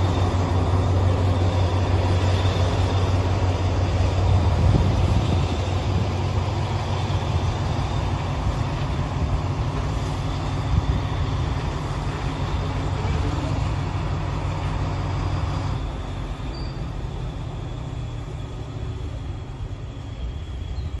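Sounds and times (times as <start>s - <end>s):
diesel locomotive engine hum: 0.0s - 21.0s.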